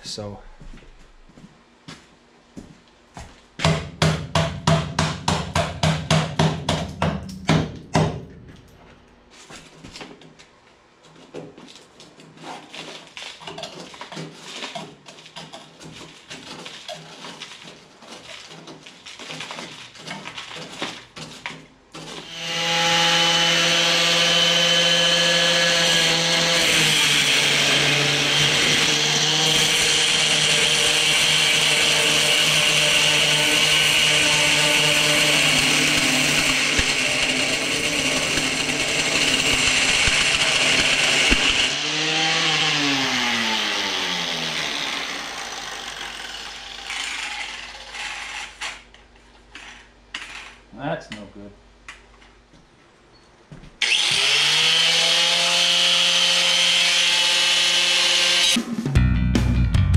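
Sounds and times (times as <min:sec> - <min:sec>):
angle grinder grinding steel: 0:22.2 - 0:48.6, 0:53.8 - 0:58.6.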